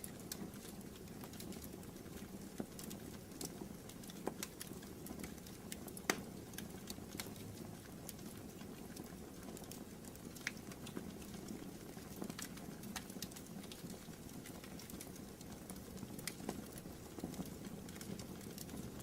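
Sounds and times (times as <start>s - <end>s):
low rumble of flames: 0.0s - 19.0s
wood fire crackling and popping: 0.0s - 19.0s.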